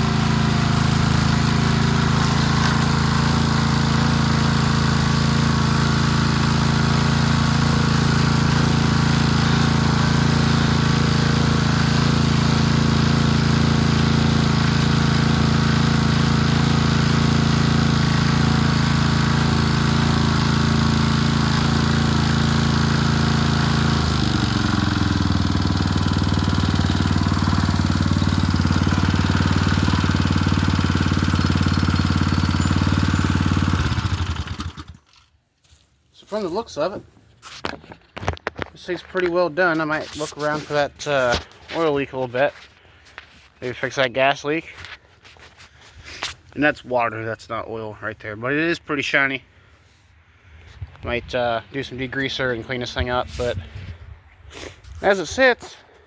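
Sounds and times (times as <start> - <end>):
small engine running: 0.0 - 35.2.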